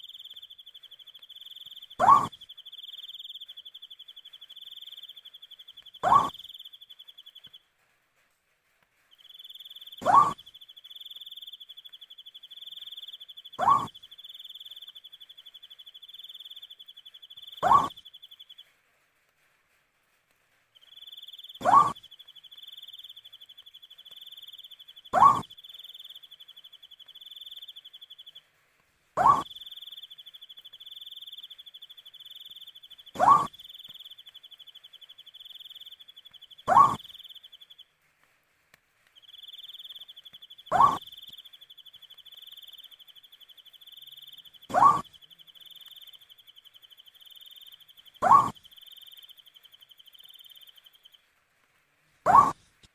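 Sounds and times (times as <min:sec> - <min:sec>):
owl calling: 0:00.0 - 0:07.5, 0:09.4 - 0:18.2, 0:20.9 - 0:28.3, 0:29.2 - 0:37.6, 0:39.2 - 0:51.1, 0:52.3 - 0:52.6
cricket trilling: 0:06.0 - 0:07.0, 0:22.6 - 0:28.2, 0:29.2 - 0:36.1, 0:39.2 - 0:51.1.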